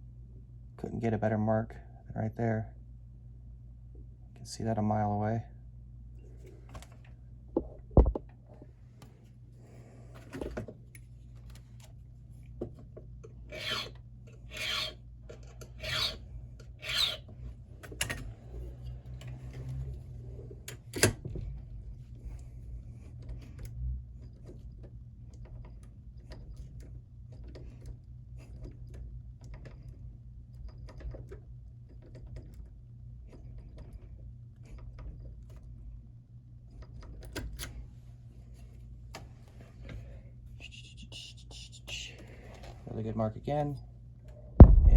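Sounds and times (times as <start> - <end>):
hand file scraping key: 13.5 - 18.2.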